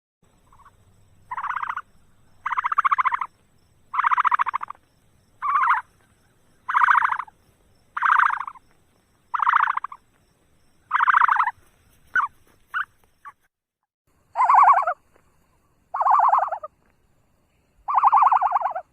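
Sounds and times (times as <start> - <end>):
animal buzzy calls: 1.3 - 1.8, 2.4 - 3.3, 3.9 - 4.8, 5.4 - 5.9, 6.7 - 7.3, 10.9 - 13.4, 14.4 - 15.0, 15.9 - 16.7, 17.9 - 18.9.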